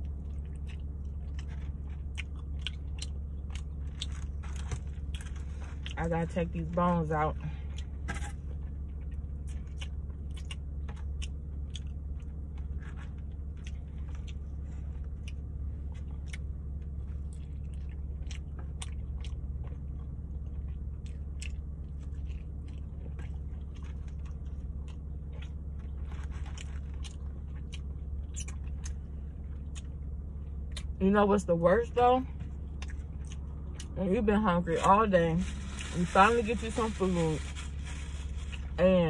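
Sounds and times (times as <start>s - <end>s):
chewing and biting meat: 0.0s - 6.0s, 8.6s - 31.0s, 32.4s - 34.0s
steady low hum: 0.0s - 39.0s.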